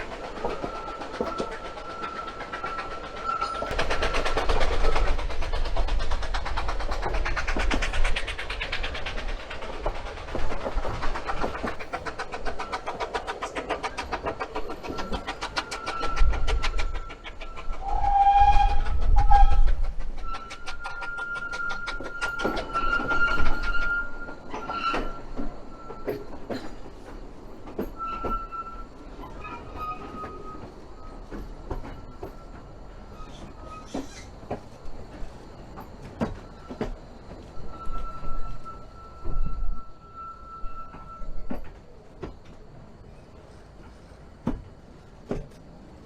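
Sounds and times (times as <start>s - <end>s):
steam train chuffing beat: 0.0s - 40.2s
wheels squealing: 0.0s - 46.0s
steam train whistle: 17.8s - 19.6s.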